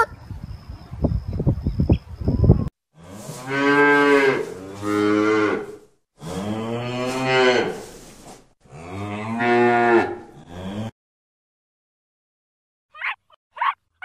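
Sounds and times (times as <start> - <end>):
cow mooing: 3.0 - 7.8, 8.7 - 10.9.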